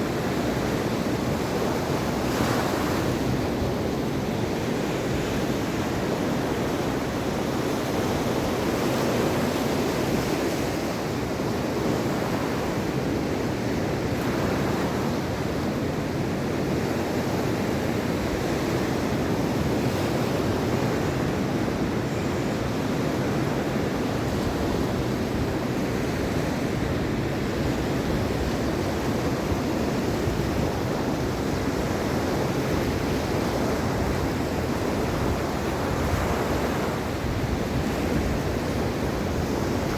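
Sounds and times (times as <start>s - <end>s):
sea waves washing onto shore: 0.0s - 39.9s
wind on microphone: 16.4s - 39.9s.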